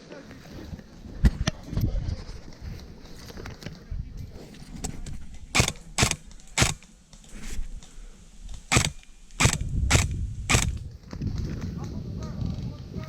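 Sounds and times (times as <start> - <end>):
airsoft gun shots: 5.6 - 6.8, 8.7 - 10.8.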